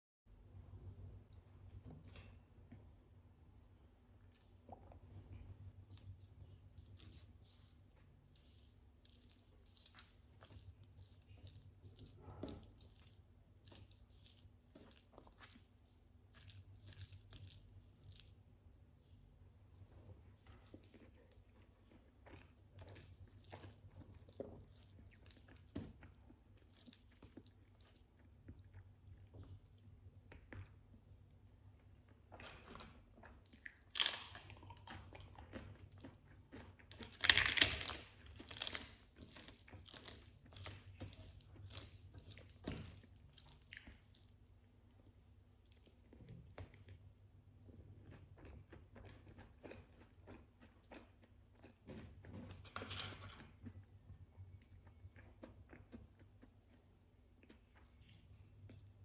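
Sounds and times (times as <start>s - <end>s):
person chewing food: 4.2s - 18.6s, 19.5s - 59.0s
crunchy bites: 33.6s - 35.7s, 36.9s - 44.1s.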